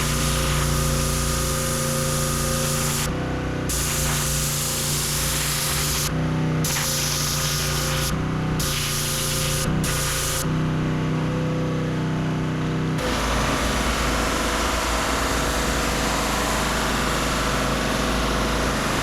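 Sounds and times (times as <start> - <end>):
high-pressure spray hissing: 0.0 - 3.1, 3.7 - 6.1, 6.7 - 10.5
pressure washer machine hum: 0.0 - 19.0.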